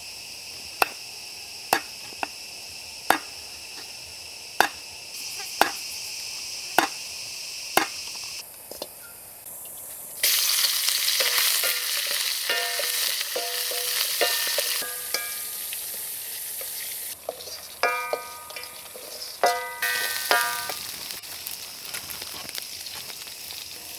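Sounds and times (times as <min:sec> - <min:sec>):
food sizzling in hot oil: 0:00.0 - 0:08.5, 0:09.4 - 0:23.9
sharp knocks: 0:03.1 - 0:03.3, 0:05.5 - 0:05.8
metal utensil scraping pan: 0:05.4 - 0:05.8, 0:11.2 - 0:20.9.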